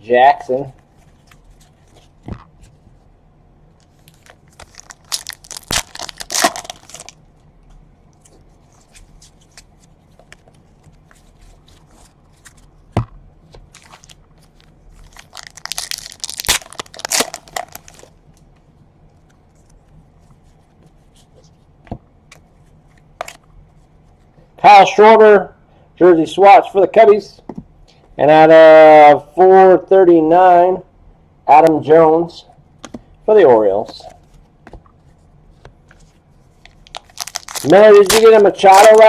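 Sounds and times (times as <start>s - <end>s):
card pack wrappers tearing: 4.1s - 7.2s, 13.7s - 18.1s, 36.7s - 39.0s.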